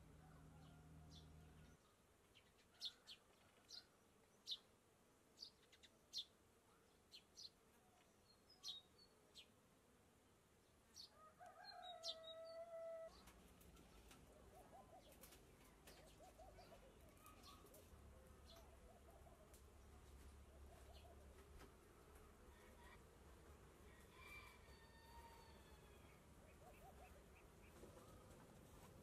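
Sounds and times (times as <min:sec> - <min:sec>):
small bird chirps: 0:14.6 - 0:19.2
long steady bird call: 0:23.8 - 0:29.0.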